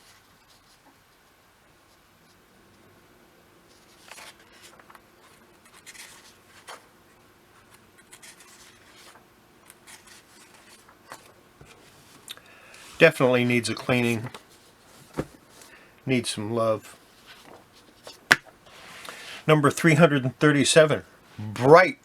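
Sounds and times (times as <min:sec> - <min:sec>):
paper pages rustling: 0:03.6 - 0:15.8, 0:16.9 - 0:19.1.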